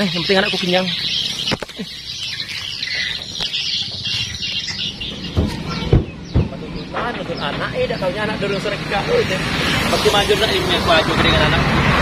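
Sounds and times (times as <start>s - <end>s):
birds chirping: 0.0s - 12.0s
low thumps: 3.2s - 8.5s.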